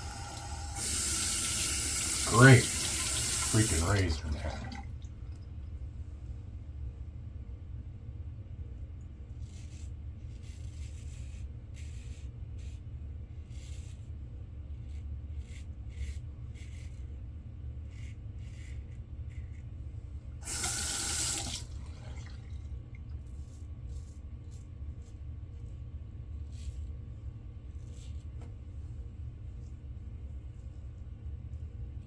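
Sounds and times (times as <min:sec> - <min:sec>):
water tap running: 0:00.0 - 0:05.4, 0:20.4 - 0:22.6.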